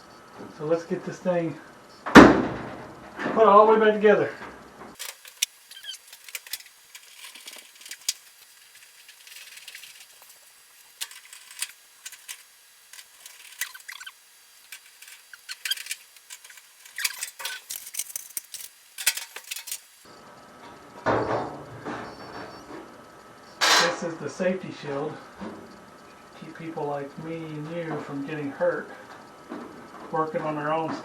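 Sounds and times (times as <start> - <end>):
screws and tools clinking: 5.0 - 14.1, 14.7 - 19.9.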